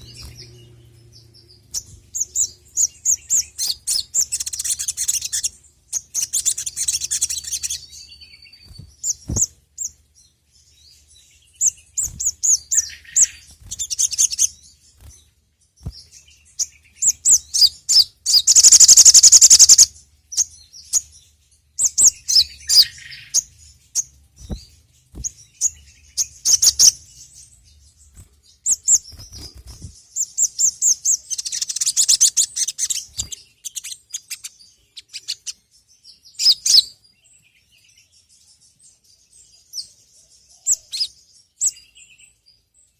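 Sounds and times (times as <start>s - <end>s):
loud bird trill: 0.0s - 9.9s, 11.4s - 15.1s, 15.8s - 21.1s, 21.8s - 27.5s, 28.6s - 38.0s
bird singing high sharp chirps: 0.0s - 10.0s, 10.8s - 15.2s, 15.8s - 21.2s, 21.8s - 37.0s.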